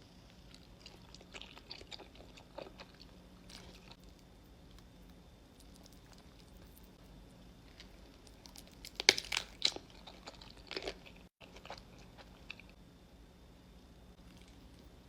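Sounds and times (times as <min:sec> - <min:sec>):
crunchy bites and chewing: 0:00.4 - 0:12.8.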